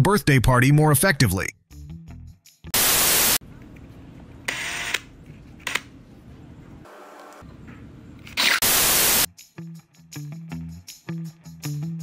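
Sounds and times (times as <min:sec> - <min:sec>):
loud static hiss: 0:02.8 - 0:03.4, 0:08.6 - 0:09.3.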